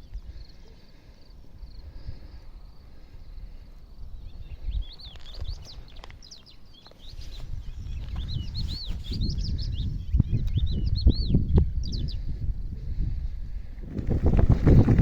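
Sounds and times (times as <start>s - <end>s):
small birds chirping: 0.0s - 12.6s
low gusty rumble: 7.5s - 15.0s.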